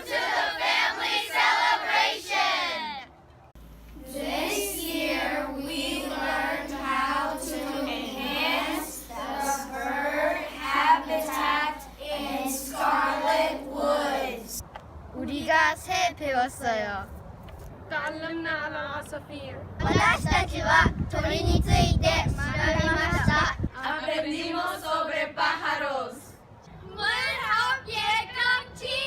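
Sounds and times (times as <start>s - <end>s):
children singing together: 0.0s - 2.8s, 4.0s - 14.6s
children's voices: 4.0s - 14.6s, 25.7s - 29.0s.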